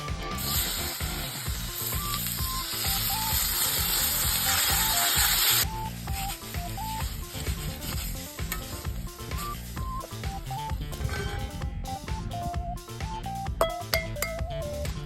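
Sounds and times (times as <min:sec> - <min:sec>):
food sizzling in a pan: 0:00.0 - 0:10.6
background music: 0:00.0 - 0:15.0.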